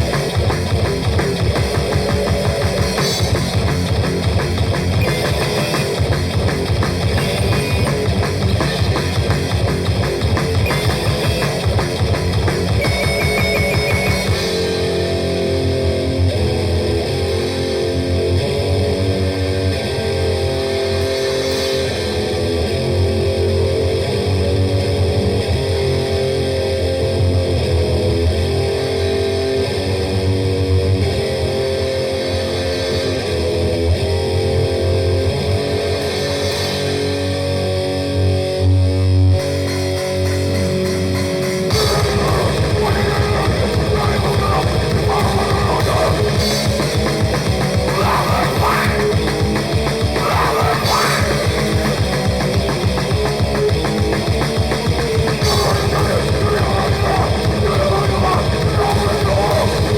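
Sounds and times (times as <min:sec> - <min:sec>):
fast dense drum beat: 0:00.0 - 0:14.8, 0:40.3 - 0:59.9
bass guitar: 0:00.0 - 0:59.9
distorted electric guitar riff: 0:00.0 - 0:59.9.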